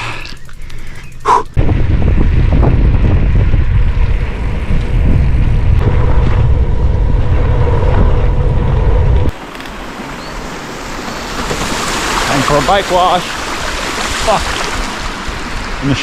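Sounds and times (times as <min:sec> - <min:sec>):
wind rumble on microphone: 0:01.1 - 0:09.4.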